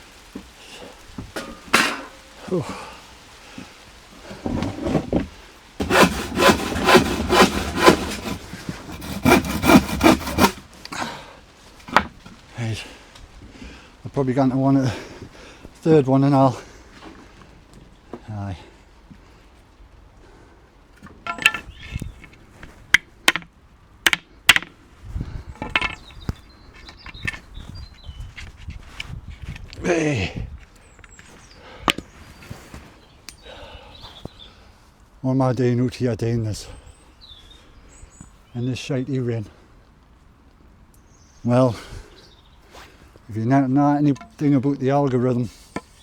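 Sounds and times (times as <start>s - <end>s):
wood clacking together: 1.2s - 2.3s, 3.6s - 10.6s, 11.8s - 12.4s, 21.0s - 24.8s, 25.6s - 27.5s, 44.0s - 46.0s
scraping and rustling: 3.6s - 10.9s
hand saw cutting wood: 5.8s - 10.8s.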